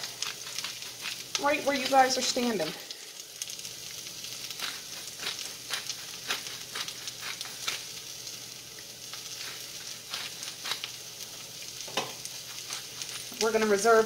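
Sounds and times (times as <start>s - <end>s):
food sizzling in frying pan: 0.0s - 14.0s.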